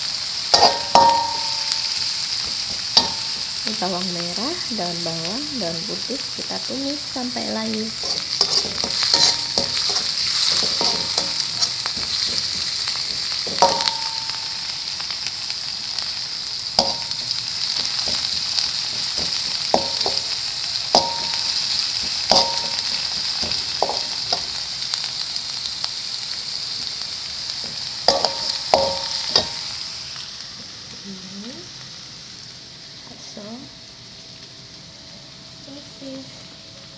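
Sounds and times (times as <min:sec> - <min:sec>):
onions sizzling in hot oil: 0:00.0 - 0:36.9
metal spatula knocking on pan: 0:00.6 - 0:03.5, 0:08.1 - 0:14.6, 0:16.8 - 0:20.4, 0:21.0 - 0:24.5, 0:28.1 - 0:29.7.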